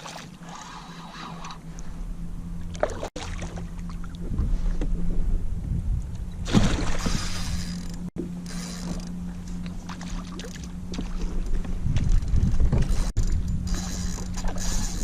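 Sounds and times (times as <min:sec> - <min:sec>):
water lapping against kayak hull: 0:00.0 - 0:05.2, 0:06.4 - 0:13.1, 0:13.7 - 0:15.0
wind buffeting microphone: 0:03.9 - 0:07.7, 0:10.8 - 0:15.0.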